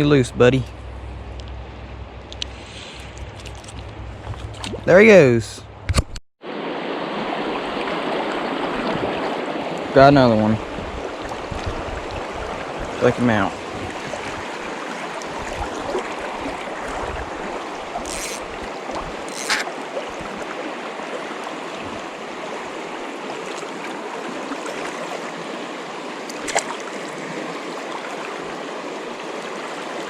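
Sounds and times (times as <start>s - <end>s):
flowing river water: 6.4s - 30.0s.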